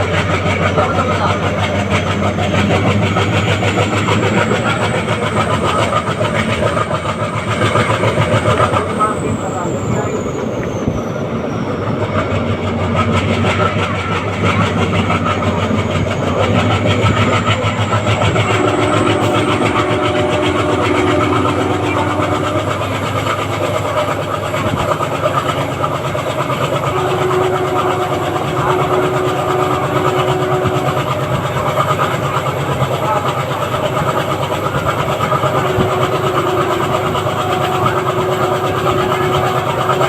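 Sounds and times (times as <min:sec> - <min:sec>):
diesel locomotive chugging: 0:00.0 - 0:40.0.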